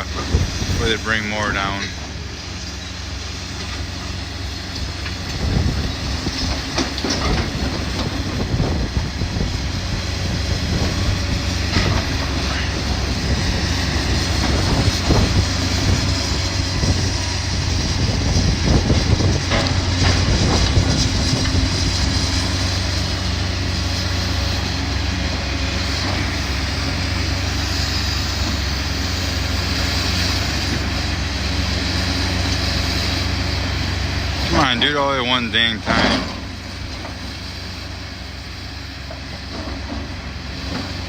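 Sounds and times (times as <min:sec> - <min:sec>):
demolition machine engine running: 0:00.0 - 0:41.0.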